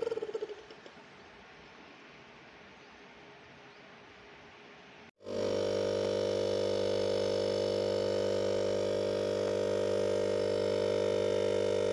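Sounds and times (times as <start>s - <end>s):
fridge compressor motor humming: 5.2s - 11.9s.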